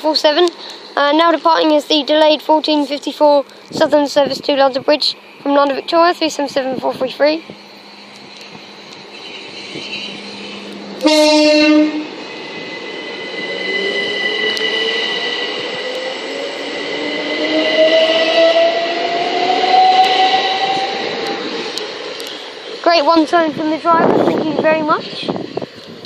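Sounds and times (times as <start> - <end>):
electric train motors whining: 0.1 - 26.0
train horn blast: 8.3 - 12.7, 17.3 - 21.4.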